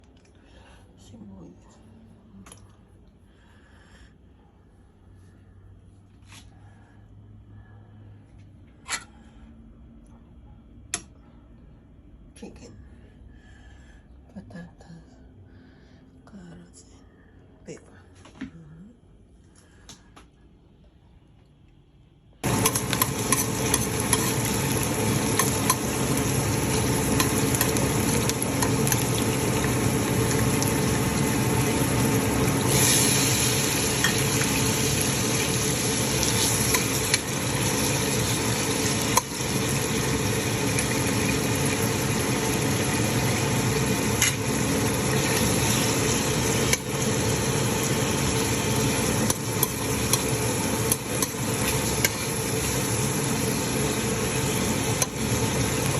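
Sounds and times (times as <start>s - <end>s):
food sizzling in hot oil: 22.4s - 55.9s.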